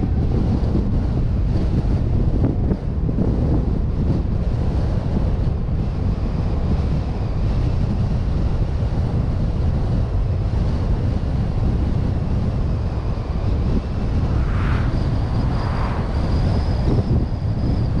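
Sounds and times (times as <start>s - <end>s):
wind buffeting microphone: 0.0s - 18.0s
car driving rumble: 11.5s - 18.0s
faint high whine: 13.1s - 18.0s.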